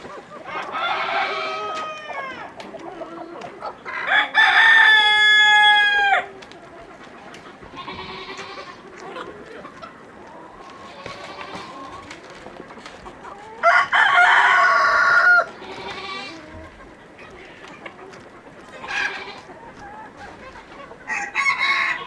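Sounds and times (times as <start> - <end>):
roosters crowing: 0.0 - 2.7, 3.7 - 6.4, 10.7 - 12.1, 13.4 - 16.7, 18.8 - 19.6, 21.0 - 22.0.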